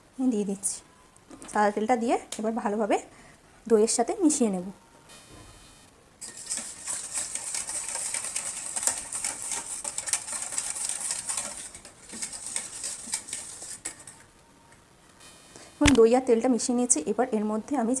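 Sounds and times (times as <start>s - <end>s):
whisk beating in a bowl: 6.2s - 14.2s.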